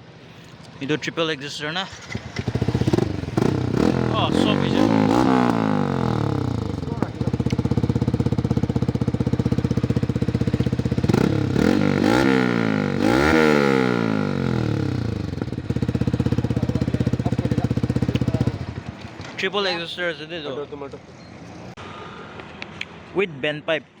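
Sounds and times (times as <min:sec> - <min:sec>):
motorcycle engine idling and revving: 0:01.9 - 0:19.8.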